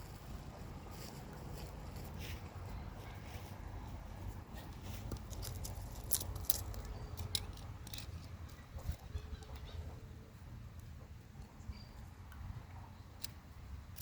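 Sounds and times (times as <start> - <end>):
kindling crackling and snapping: 5.1 - 9.0.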